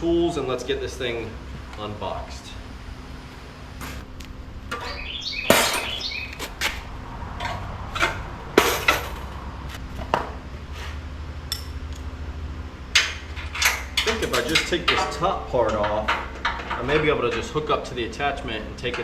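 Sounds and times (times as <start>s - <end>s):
low hum: 0.0s - 19.0s
metal tools clanking on steel crate: 4.7s - 6.8s, 7.4s - 9.4s, 12.9s - 19.0s
sharp knocks: 4.7s - 6.8s.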